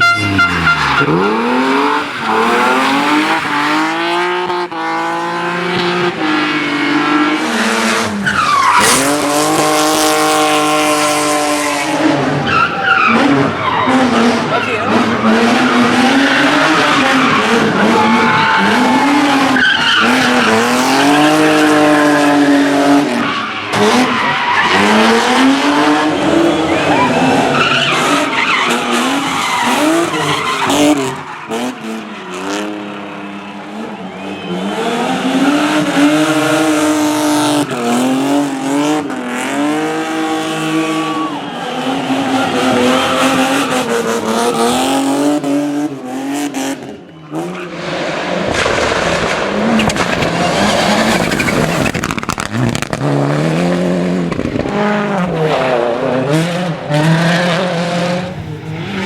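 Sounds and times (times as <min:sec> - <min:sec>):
rally car engines revving: 0:00.0 - 0:59.0.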